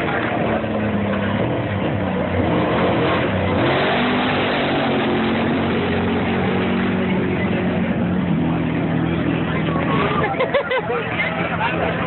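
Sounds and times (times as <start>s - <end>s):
loud rush of noise: 0.0s - 12.0s
truck engine accelerating hard: 0.0s - 12.0s.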